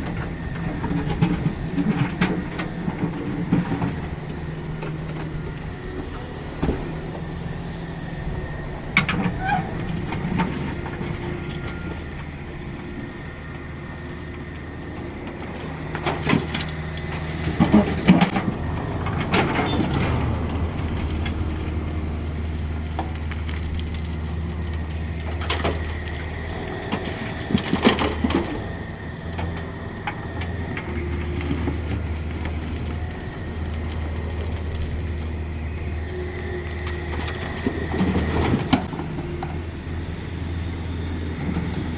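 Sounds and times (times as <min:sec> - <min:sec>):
excavator engine hum: 0:00.0 - 0:41.9
bucket clanking and scraping soil: 0:14.1 - 0:39.6.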